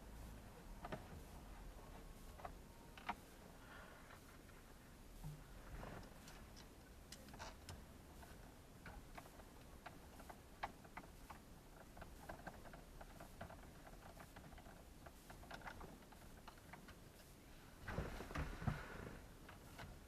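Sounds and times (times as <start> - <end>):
scrape or rustle: 17.1 - 19.9.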